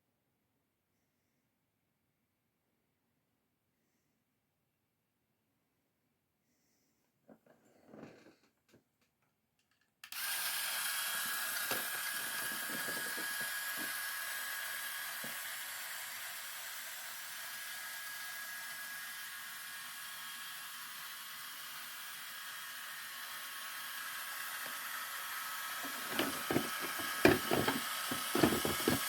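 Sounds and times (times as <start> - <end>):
toy engine model whirring clatter: 9.6 - 29.0.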